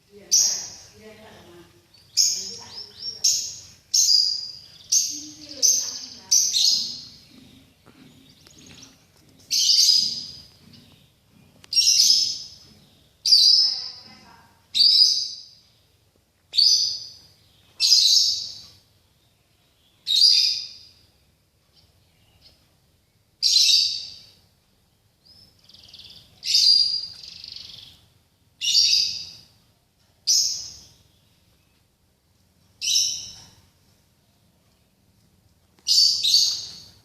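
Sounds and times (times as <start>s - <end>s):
songbird singing: 0.0s - 37.0s.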